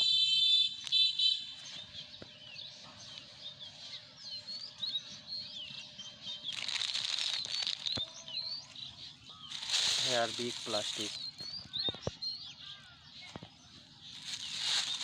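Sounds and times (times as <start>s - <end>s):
small birds chirping: 0.0s - 15.0s
crackling rustle: 6.3s - 12.2s, 14.0s - 15.0s
buzzy bird call: 6.4s - 11.4s, 14.1s - 15.0s.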